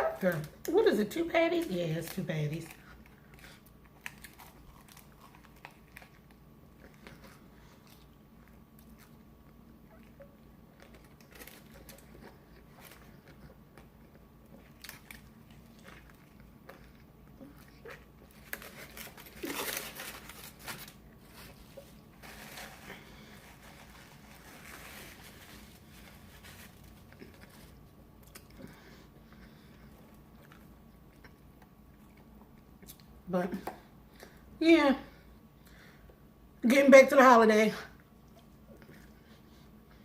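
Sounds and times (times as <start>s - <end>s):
person chewing: 2.7s - 33.2s
wrapper crinkling: 10.8s - 13.2s, 18.3s - 27.8s.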